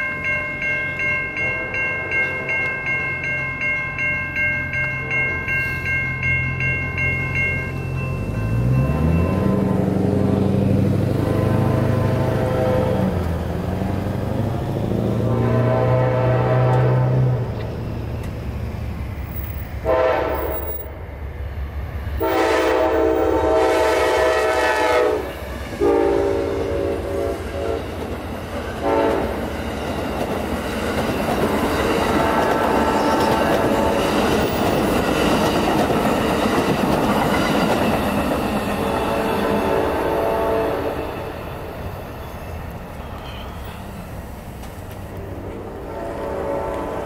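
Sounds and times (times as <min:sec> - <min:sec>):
train horn blasts: 0:11.1 - 0:13.3, 0:15.1 - 0:17.6, 0:19.8 - 0:20.8, 0:22.2 - 0:28.0, 0:28.8 - 0:29.4, 0:32.1 - 0:34.5, 0:38.8 - 0:41.2, 0:45.5 - 0:47.0
train wheels clattering on rails: 0:27.1 - 0:40.4.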